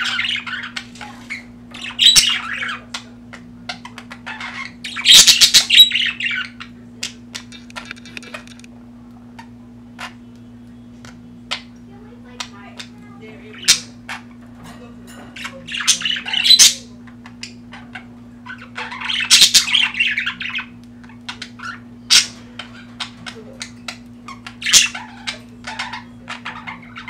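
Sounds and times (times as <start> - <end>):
budgerigars chirping and squawking: 0.0 - 8.7, 9.4 - 27.0
steady low hum: 0.0 - 27.0.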